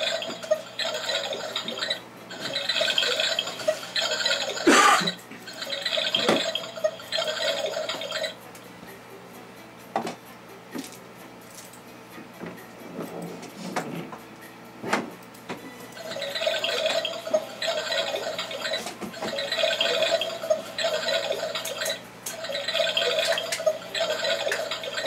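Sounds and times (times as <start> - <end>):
toy washing machine humming: 0.0 - 9.0, 15.6 - 25.0
toy washing machine clicking: 16.0 - 25.0.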